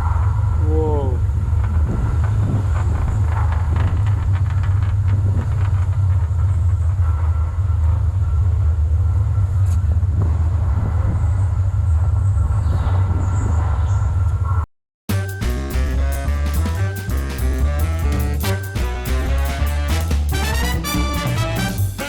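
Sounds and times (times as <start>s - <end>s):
moving vehicle rumble: 0.0s - 14.6s.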